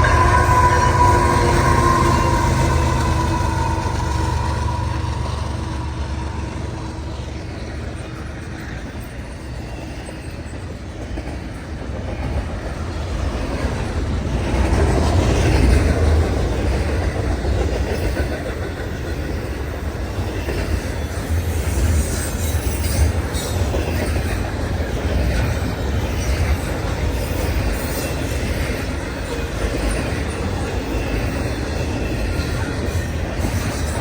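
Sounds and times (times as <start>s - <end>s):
freight train rolling past: 0.0s - 34.0s.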